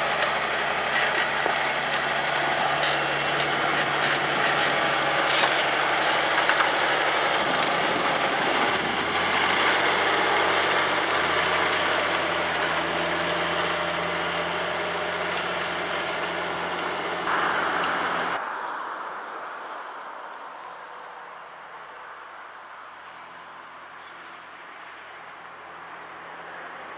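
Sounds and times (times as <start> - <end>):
tractor diesel engine running: 0.0 - 18.4.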